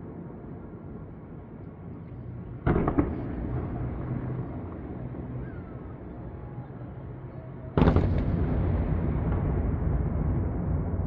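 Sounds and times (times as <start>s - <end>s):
distant fireworks bursting: 2.6s - 5.1s, 7.8s - 10.5s.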